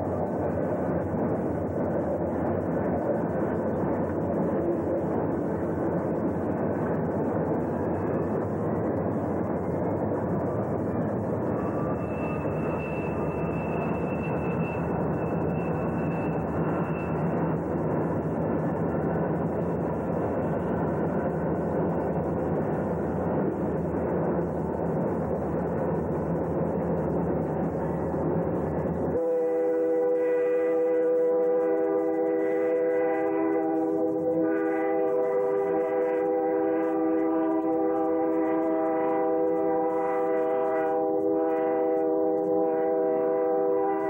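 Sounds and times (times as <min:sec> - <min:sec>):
train rumbling past: 0:00.0 - 0:44.0
train horn chord: 0:29.2 - 0:44.0.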